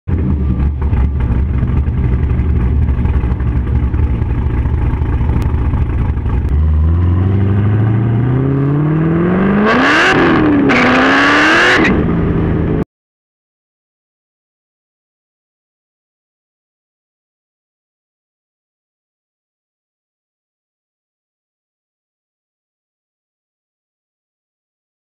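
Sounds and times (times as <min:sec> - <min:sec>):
car engine idling: 0:00.1 - 0:07.2
car engine accelerating hard: 0:00.1 - 0:12.8.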